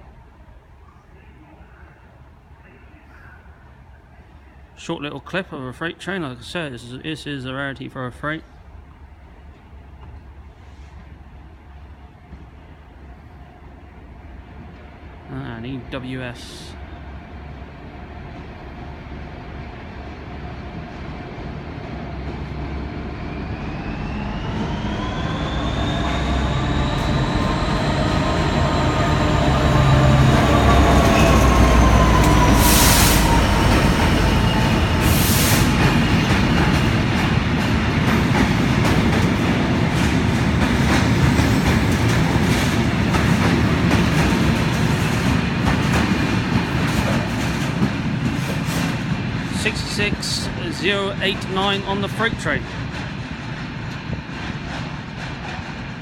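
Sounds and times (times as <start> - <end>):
diesel locomotive whine: 0.0 - 56.0
wagons clattering over rail joints: 35.8 - 49.1.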